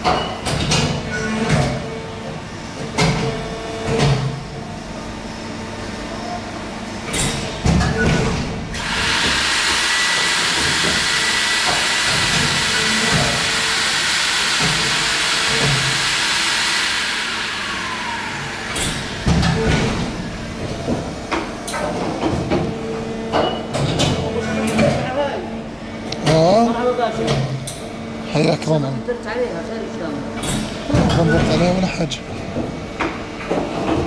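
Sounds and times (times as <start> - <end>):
machine hum: 0.0 - 34.0
loud hiss of escaping air: 8.8 - 12.0.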